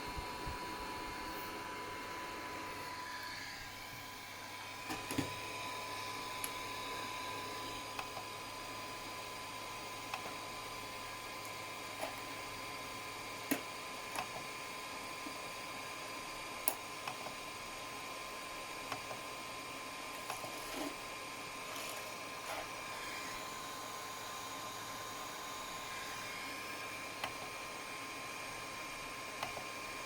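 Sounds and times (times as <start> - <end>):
fan whining: 0.0 - 30.0.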